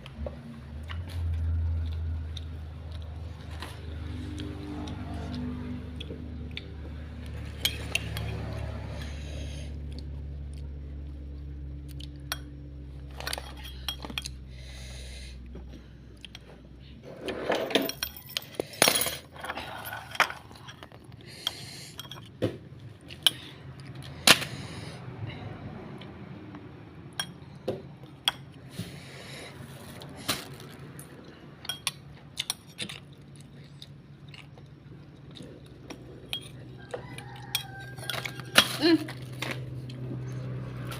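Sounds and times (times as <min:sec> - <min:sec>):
utensils and dishes clinking: 0:07.4 - 0:08.7, 0:17.0 - 0:22.4, 0:30.3 - 0:33.1, 0:35.9 - 0:39.8.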